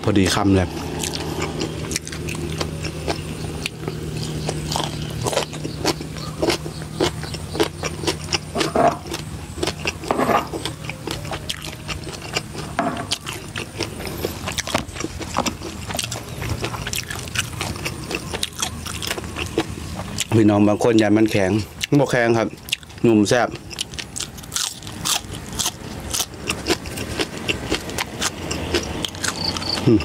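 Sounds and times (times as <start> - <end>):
low hum: 0.0 - 30.0
crisp chewing crunches: 0.3 - 30.0
wet mouth noises: 21.6 - 30.0.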